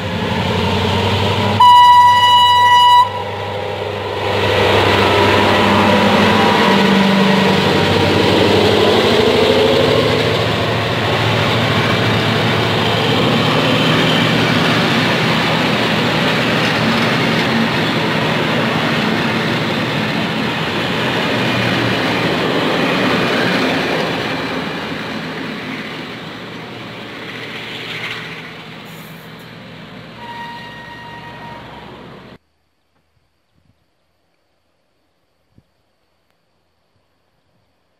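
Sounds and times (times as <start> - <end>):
locomotive engine: 0.0 - 32.4
wagons rolling on rails: 7.3 - 29.3.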